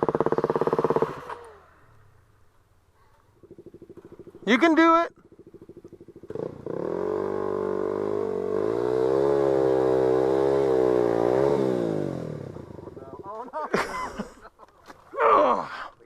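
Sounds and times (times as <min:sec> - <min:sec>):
dirt bike engine revving: 0:00.0 - 0:02.1, 0:03.4 - 0:14.0.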